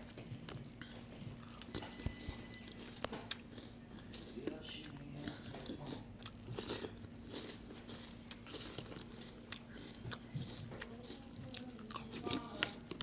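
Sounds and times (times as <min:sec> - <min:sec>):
crunchy cereal chewing: 0:00.0 - 0:13.0
faint low hum: 0:00.0 - 0:13.0.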